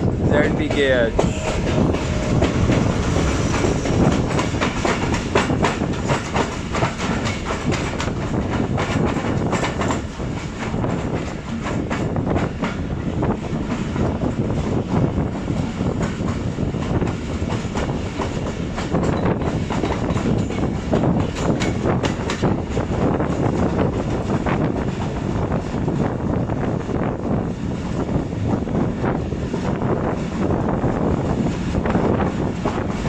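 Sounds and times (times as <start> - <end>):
train rumble: 0.0 - 33.0
wheels clacking over rail joints: 0.1 - 14.7, 15.4 - 25.2.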